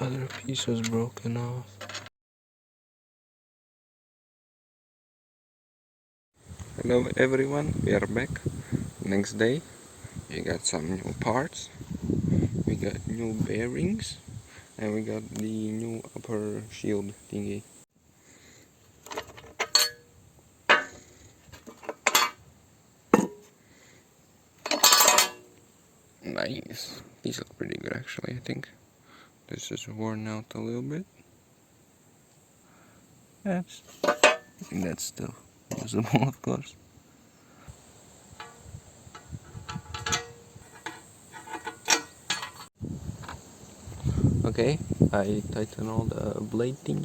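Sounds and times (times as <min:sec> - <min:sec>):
metal parts clinking: 0:01.8 - 0:02.1, 0:19.0 - 0:20.1, 0:20.7 - 0:22.4, 0:24.6 - 0:25.6, 0:33.9 - 0:34.6, 0:38.4 - 0:42.7.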